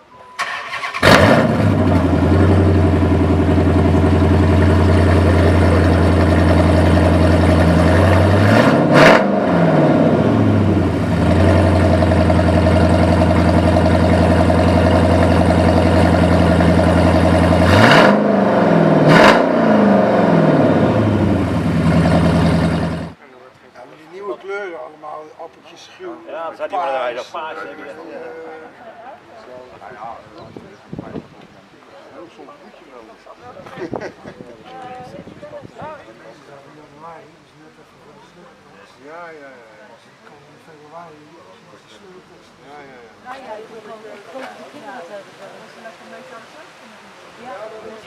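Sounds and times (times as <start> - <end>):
car engine idling and revving: 0.7 - 23.2
exhaust pop: 1.0 - 23.2.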